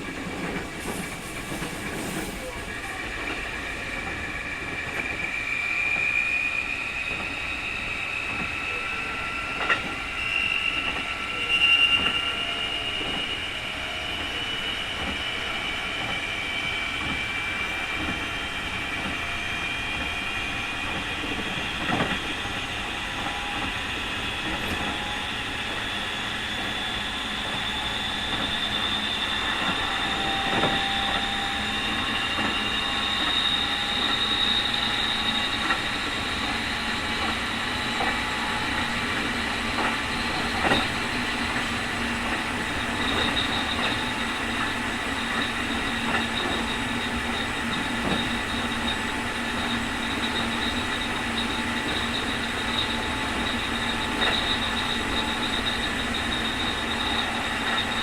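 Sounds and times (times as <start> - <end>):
rail noise: 0.0 - 58.0
electric train motor whine: 2.8 - 58.0.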